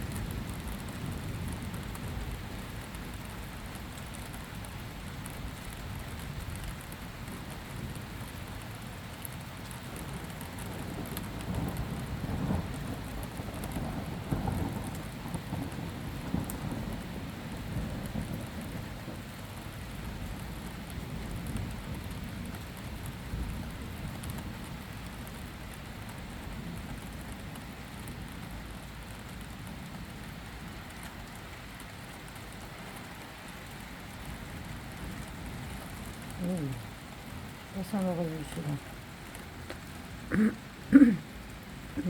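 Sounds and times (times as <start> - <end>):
steady rain: 0.0 - 42.0
rolling thunder rumble: 10.6 - 19.3.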